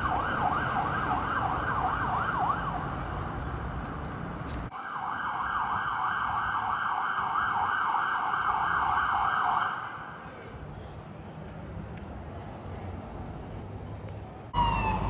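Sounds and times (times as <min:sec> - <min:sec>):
fire truck siren yelping: 0:00.0 - 0:02.9, 0:04.7 - 0:09.9, 0:14.6 - 0:15.0.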